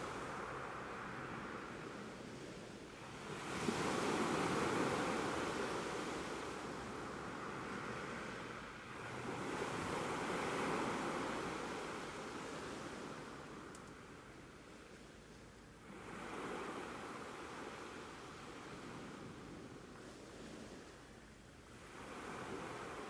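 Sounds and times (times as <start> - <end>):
ocean waves washing in: 21.7 - 23.0.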